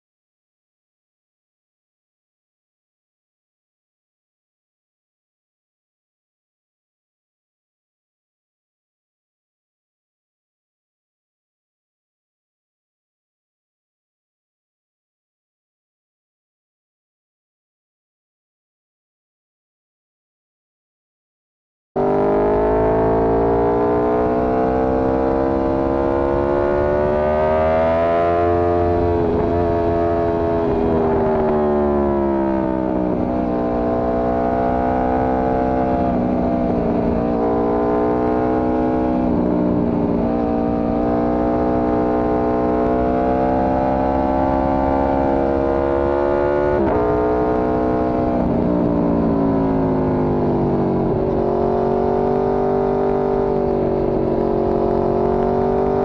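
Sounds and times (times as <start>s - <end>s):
motorcycle engine accelerating: 22.0s - 56.0s.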